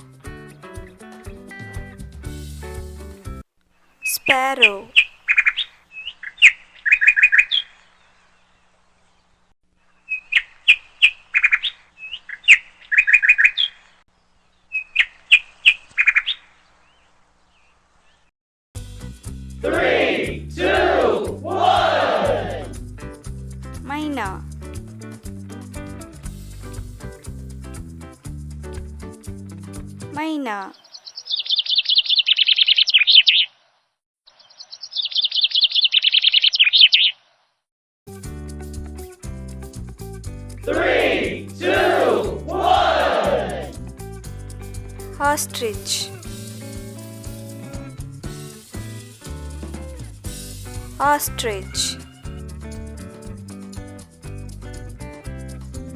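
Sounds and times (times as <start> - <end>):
music: 0.0 - 3.4, 18.8 - 30.2, 38.1 - 55.9
sparrow chirping: 4.0 - 7.7, 30.4 - 33.5, 34.3 - 37.2, 51.0 - 52.3.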